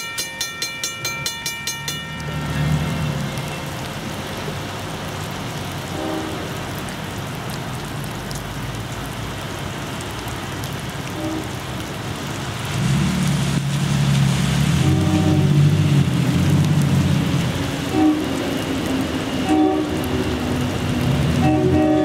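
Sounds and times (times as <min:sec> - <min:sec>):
diesel locomotive rumble: 0:00.0 - 0:07.8, 0:10.9 - 0:22.0
rain on wet pavement: 0:00.0 - 0:22.0.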